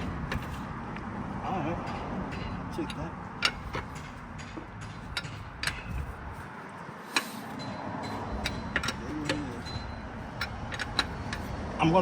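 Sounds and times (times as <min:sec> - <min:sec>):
hand wrench clicking: 0:02.4 - 0:06.3, 0:07.1 - 0:11.6.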